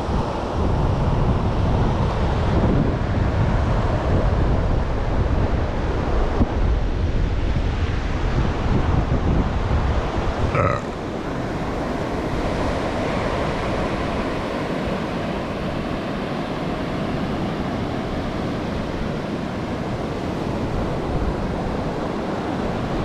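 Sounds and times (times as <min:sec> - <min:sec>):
ocean surf washing: 0:00.0 - 0:23.0
wind: 0:00.0 - 0:23.0.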